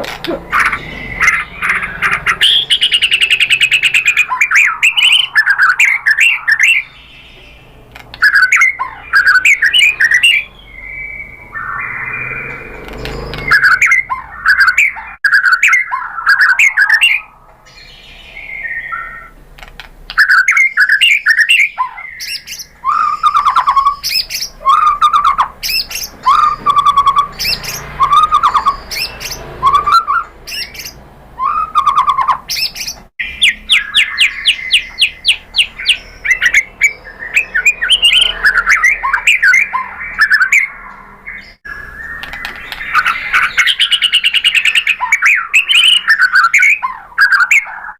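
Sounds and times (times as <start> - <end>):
songbird whistled song: 0.0 - 19.4, 20.1 - 47.9.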